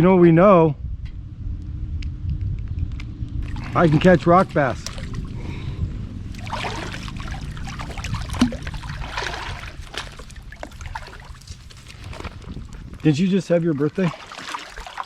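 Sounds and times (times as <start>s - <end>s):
steady low rumble: 0.0s - 15.0s
creek water splashing: 3.4s - 15.0s.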